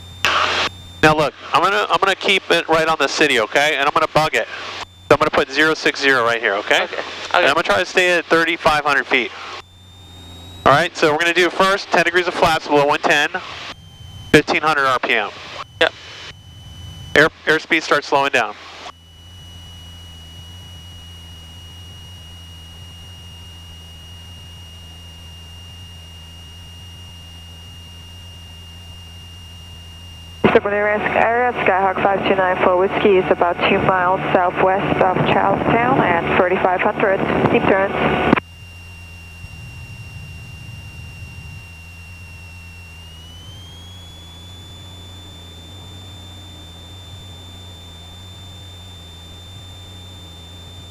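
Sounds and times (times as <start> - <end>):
airplane engine drone: 0.0 - 50.9
stall warning horn tone: 18.5 - 50.9.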